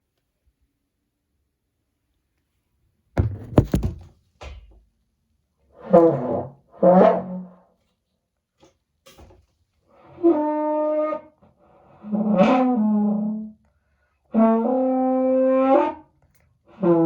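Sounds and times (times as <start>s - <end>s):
knocks and thuds: 3.2s - 4.1s.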